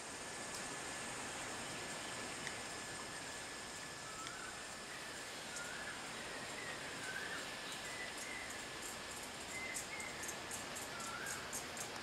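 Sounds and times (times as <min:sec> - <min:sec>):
outdoor hiss: 0:00.0 - 0:12.0
faint whistled bird notes: 0:04.0 - 0:08.6, 0:09.5 - 0:11.7
high insect ticking: 0:07.7 - 0:12.0.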